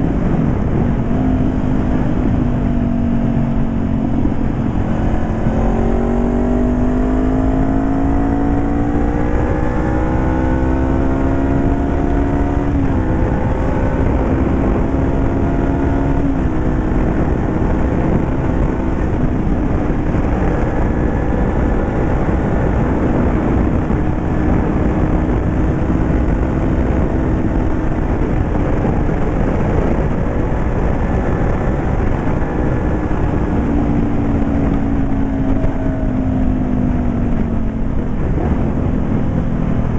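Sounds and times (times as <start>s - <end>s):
motorcycle engine accelerating: 0.0s - 39.9s
wind rumbling on microphone: 0.0s - 39.9s.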